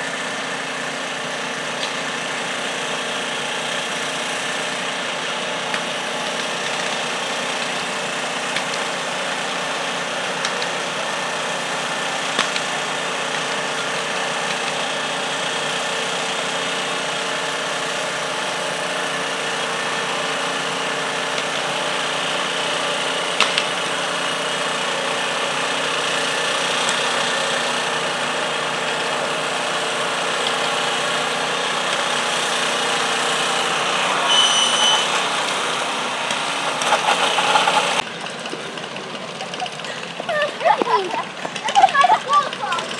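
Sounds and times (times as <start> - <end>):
tractor engine running: 0.0 - 42.9
high whistle-like tone: 34.3 - 35.2.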